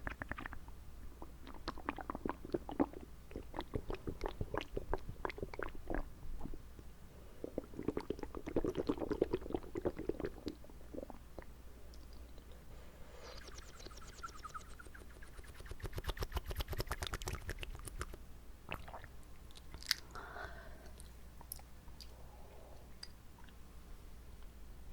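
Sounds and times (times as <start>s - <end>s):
tongue clicks: 13.4s - 18.2s
lip smacks: 13.4s - 20.2s.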